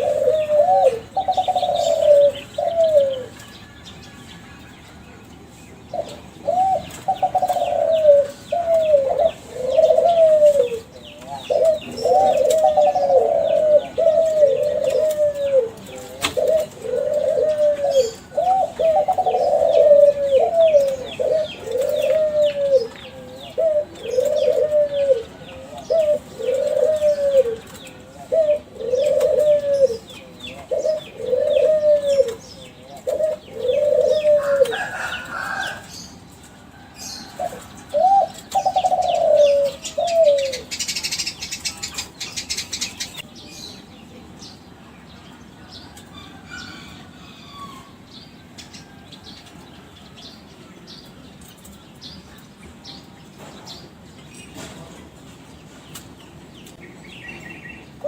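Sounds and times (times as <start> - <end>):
doves cooing: 0.0 - 5.1, 5.8 - 43.7.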